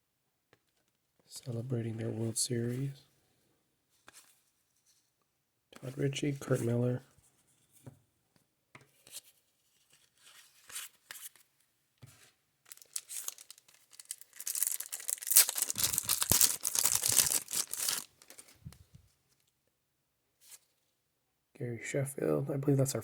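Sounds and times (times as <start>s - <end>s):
crackly rustling and crinkling: 8.9s - 19.6s.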